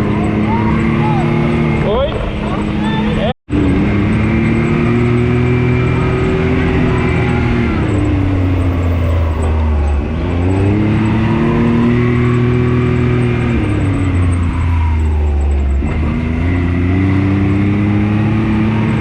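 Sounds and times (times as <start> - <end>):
engine revving on the move: 0.0 - 19.0.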